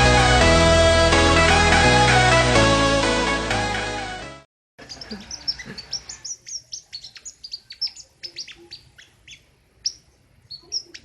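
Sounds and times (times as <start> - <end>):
songbird singing high sharp notes: 4.8 - 11.0.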